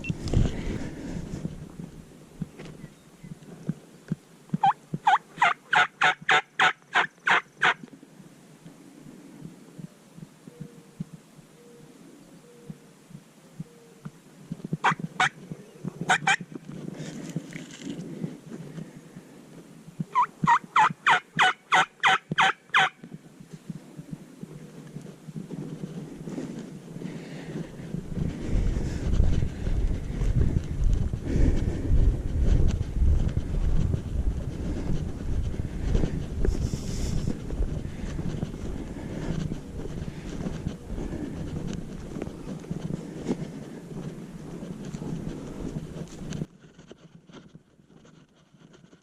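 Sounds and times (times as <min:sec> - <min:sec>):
turkey call yelps: 0:04.6 - 0:07.8, 0:16.1 - 0:16.4, 0:20.1 - 0:23.0.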